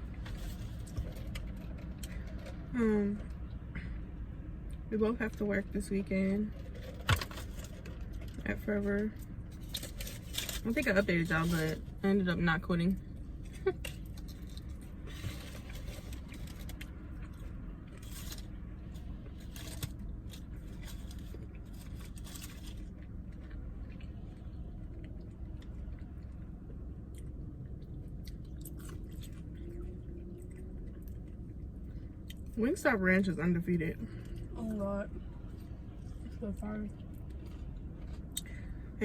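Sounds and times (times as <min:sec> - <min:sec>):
steady low hum: 0:00.0 - 0:39.0
person chewing crunchy food: 0:13.2 - 0:32.5, 0:37.0 - 0:38.8.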